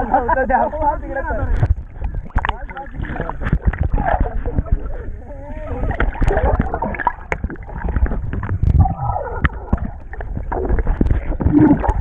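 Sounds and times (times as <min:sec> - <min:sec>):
river water churning and splashing: 0:05.8 - 0:12.0.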